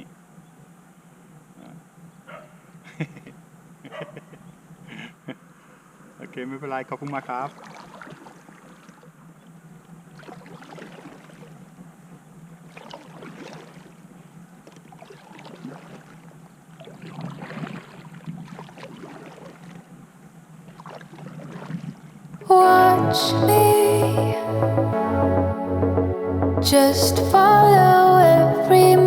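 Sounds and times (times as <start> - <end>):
paddle splashing in water: 7.2 - 9.1, 10.1 - 11.9, 12.6 - 22.4.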